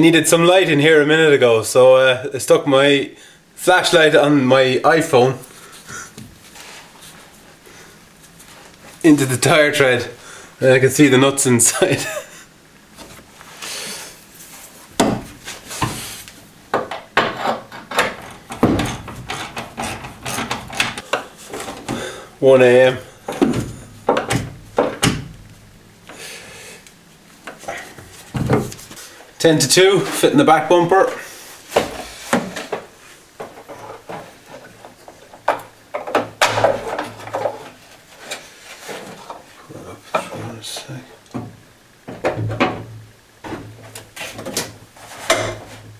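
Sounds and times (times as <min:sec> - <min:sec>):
tools knocking and clunking: 0:14.9 - 0:16.0, 0:16.7 - 0:22.1, 0:23.2 - 0:25.7, 0:27.4 - 0:29.0, 0:31.7 - 0:37.8, 0:41.3 - 0:45.9
car bumper knocking and clanking: 0:16.7 - 0:19.5, 0:23.3 - 0:25.7
scraping and rubbing: 0:17.2 - 0:21.9.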